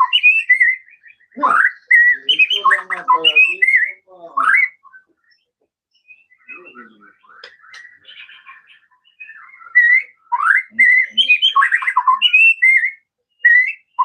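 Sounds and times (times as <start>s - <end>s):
bird singing whistled phrases: 0.0s - 5.4s, 6.0s - 14.0s.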